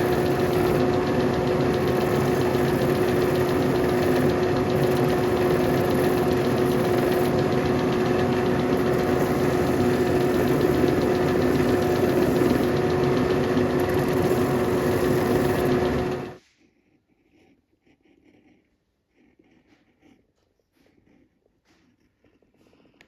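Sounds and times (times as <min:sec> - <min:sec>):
electric motor humming and grinding: 0:00.0 - 0:16.4.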